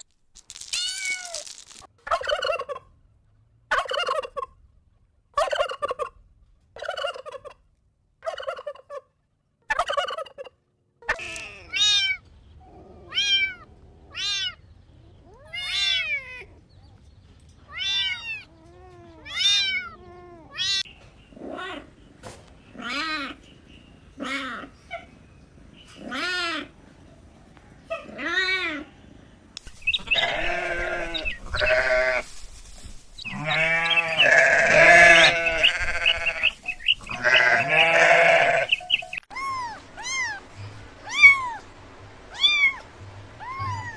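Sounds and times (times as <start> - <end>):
kittens meowing: 29.6 - 39.2.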